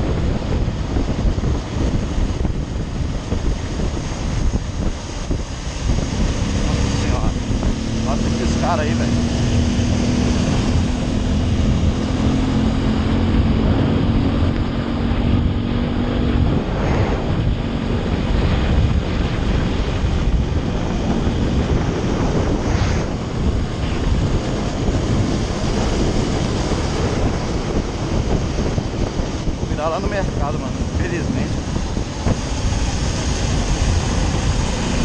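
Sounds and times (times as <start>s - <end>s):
motorcycle engine hum: 0.0s - 35.0s
wind buffeting microphone: 0.0s - 35.0s.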